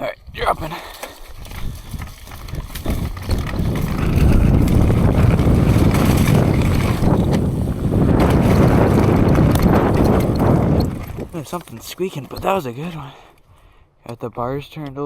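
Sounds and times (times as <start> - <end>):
bike tyres rumbling on dirt: 0.6 - 13.3
wind rushing over microphone: 1.3 - 11.5.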